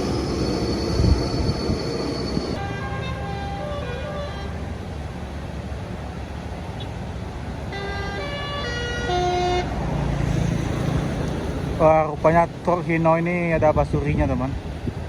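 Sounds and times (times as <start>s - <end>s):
truck engine rumble: 0.0s - 15.0s
musical truck horn tune: 2.6s - 5.0s, 7.7s - 9.8s.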